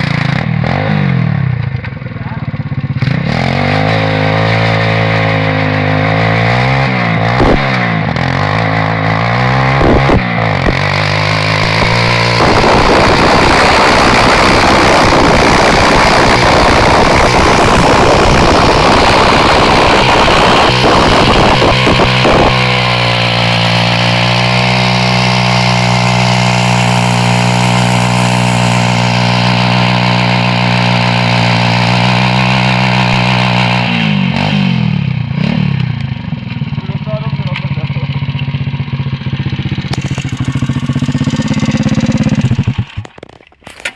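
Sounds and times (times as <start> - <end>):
pit bike engine revving: 0.0 - 43.9
tyre spinning on ground: 40.0 - 43.9.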